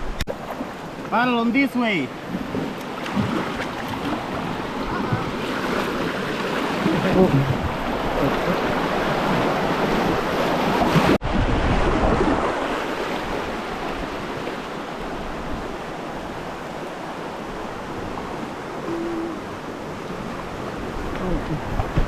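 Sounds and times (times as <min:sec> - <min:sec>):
wind noise on microphone: 0:06.9 - 0:14.4, 0:17.7 - 0:22.0.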